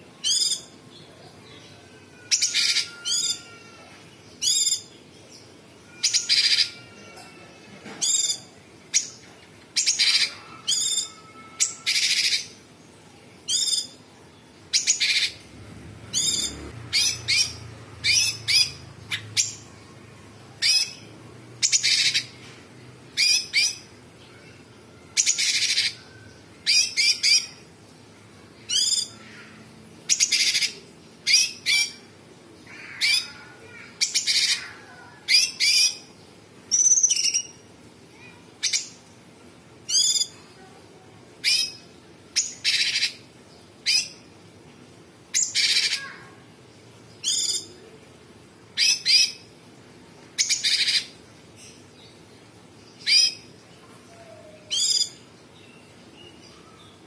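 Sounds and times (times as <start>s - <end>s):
bird calling harshly: 45.4s - 46.3s.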